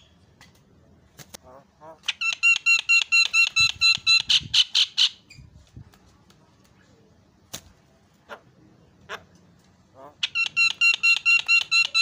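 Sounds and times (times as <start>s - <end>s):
myna calling ringing notes: 2.0s - 5.3s, 10.1s - 12.0s.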